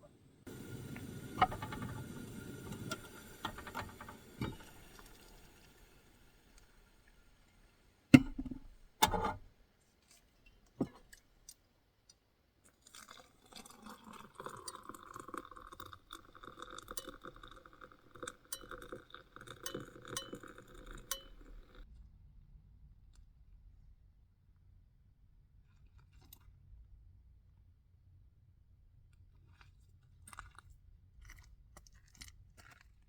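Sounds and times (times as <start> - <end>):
dishware clinking: 18.5 - 21.8.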